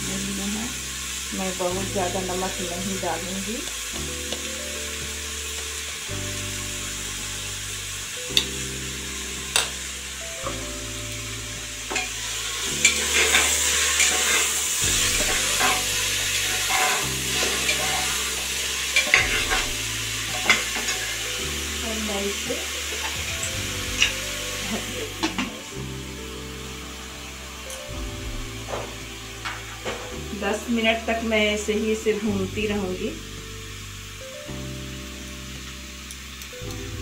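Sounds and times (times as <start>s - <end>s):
vegetables sizzling in pot: 0.0s - 37.0s
steel ladle scraping and clinking: 11.9s - 21.4s, 22.9s - 25.7s.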